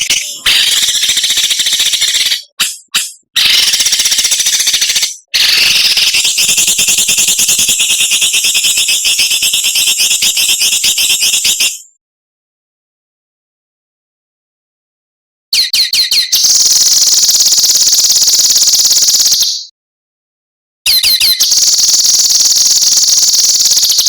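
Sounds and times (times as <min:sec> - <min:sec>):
songbird buzzing rattle call: 0:00.0 - 0:09.1.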